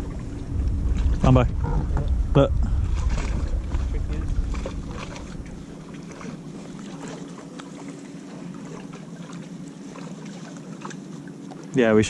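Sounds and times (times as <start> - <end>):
faint steady hum: 0.0 - 12.0
water splashes and drips: 2.9 - 11.8.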